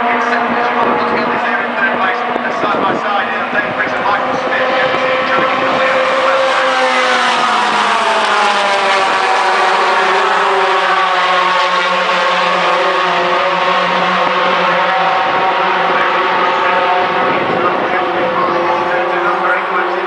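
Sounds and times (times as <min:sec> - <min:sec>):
racing truck engines: 0:00.0 - 0:20.0.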